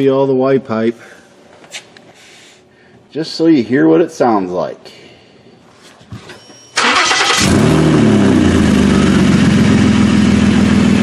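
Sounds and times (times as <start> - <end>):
engine cranking: 6.8 - 7.7
car engine idling: 6.8 - 11.0.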